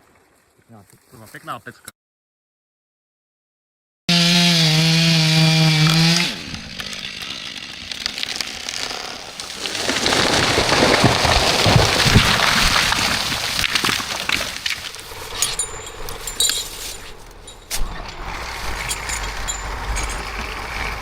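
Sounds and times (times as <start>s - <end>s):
chainsaw running at high revs: 4.1s - 9.7s
noisy rushing and crackling: 9.3s - 21.0s.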